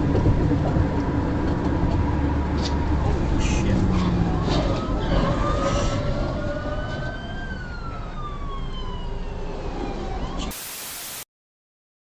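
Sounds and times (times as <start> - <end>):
road noise: 0.0 - 11.2
emergency siren wailing: 3.9 - 10.6
burst of hiss: 10.5 - 11.2.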